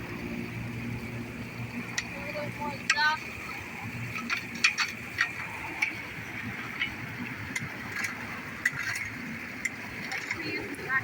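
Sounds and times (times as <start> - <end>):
water running into storm drain: 0.0 - 11.0
sharp clicks and knocks: 4.1 - 6.0.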